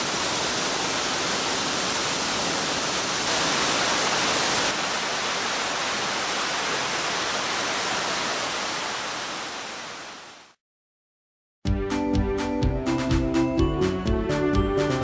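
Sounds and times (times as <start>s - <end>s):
waterfall rushing: 0.0s - 10.6s
music: 11.6s - 15.0s.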